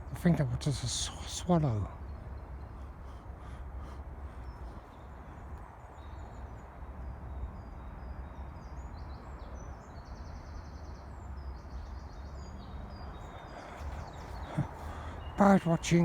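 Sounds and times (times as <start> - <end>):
small birds chirping and whistling: 8.3 - 16.0.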